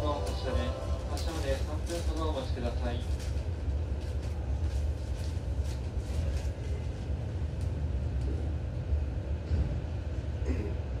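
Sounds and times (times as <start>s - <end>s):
low equipment hum: 0.0s - 11.0s.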